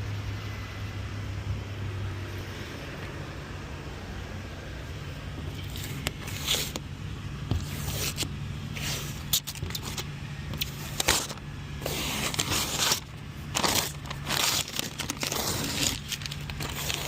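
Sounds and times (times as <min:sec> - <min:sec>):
truck engine idling: 0:03.2 - 0:17.0
scrapes and clicks of handling: 0:05.5 - 0:06.9, 0:07.5 - 0:17.0.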